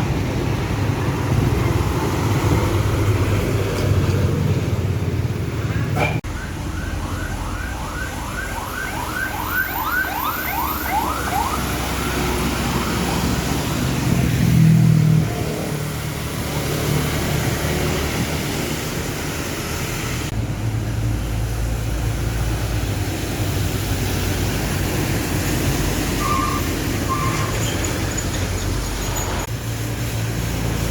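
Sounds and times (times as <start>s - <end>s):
heavy trucks on road: 0.0s - 30.9s
rising siren-like whoop: 6.3s - 13.6s.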